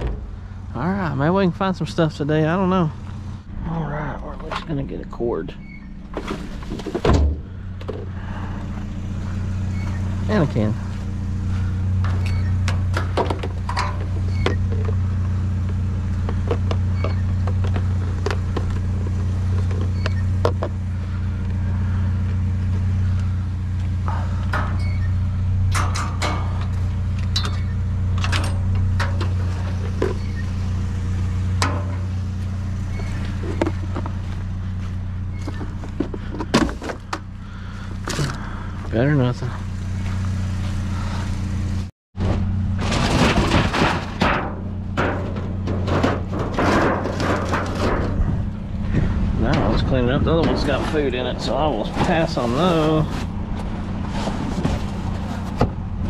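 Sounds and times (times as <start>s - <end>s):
vehicle engine idling: 0.0s - 56.0s
objects clanking in a dumpster: 6.0s - 8.5s, 11.6s - 21.1s, 24.1s - 34.4s, 35.3s - 38.4s, 42.2s - 56.0s.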